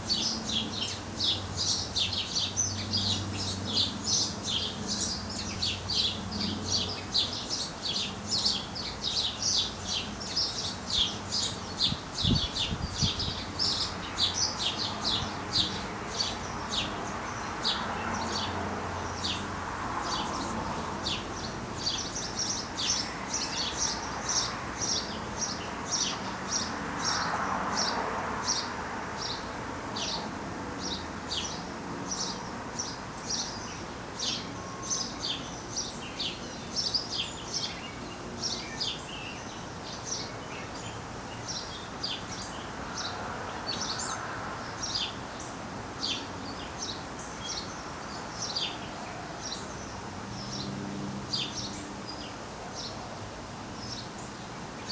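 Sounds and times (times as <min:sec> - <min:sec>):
small birds chirping: 0:00.0 - 0:27.2, 0:30.0 - 0:53.0.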